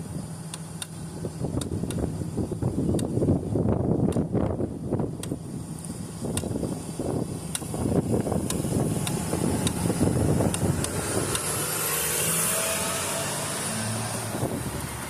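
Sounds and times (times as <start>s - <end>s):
wind gusting against microphone: 1.0s - 15.0s
road vehicle passing by: 8.0s - 15.0s.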